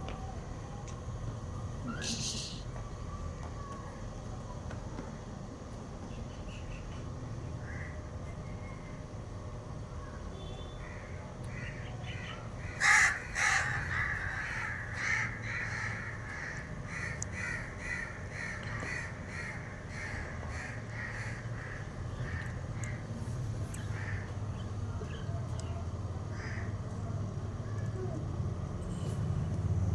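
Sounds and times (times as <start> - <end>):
bird calling in short calls: 12.8 - 16.1.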